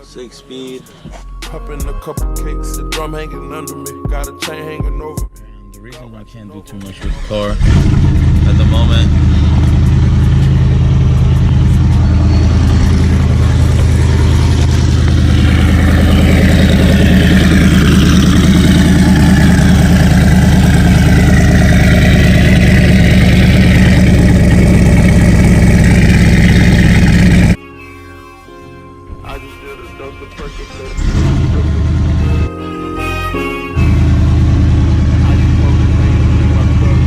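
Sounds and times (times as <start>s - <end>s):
car engine idling loudly: 7.6s - 27.6s, 31.0s - 32.5s, 33.9s - 37.0s
higher-pitched turbo noise: 9.2s - 28.7s.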